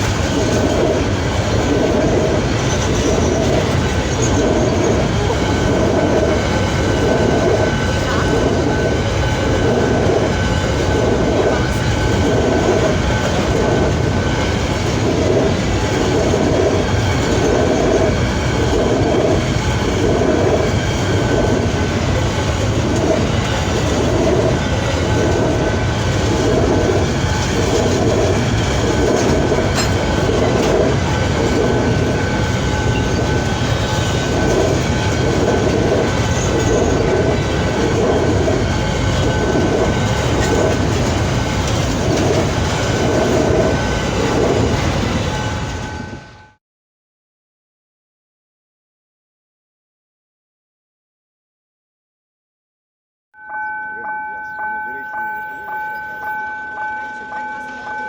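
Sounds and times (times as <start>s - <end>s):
train wheels clattering over rail joints: 0.0s - 46.0s
wheels whining on rails: 0.0s - 46.6s, 53.4s - 58.0s.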